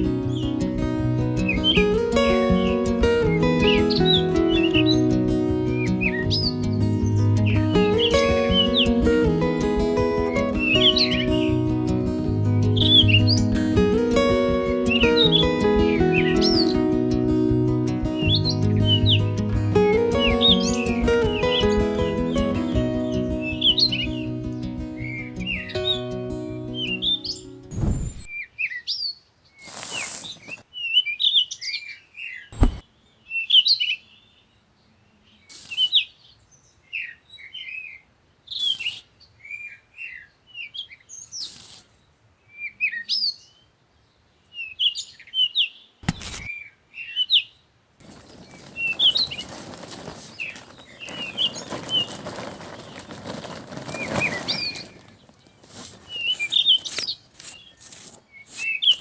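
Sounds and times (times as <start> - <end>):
small birds chirping: 0.0 - 59.0
sharp knocks: 32.6 - 32.8.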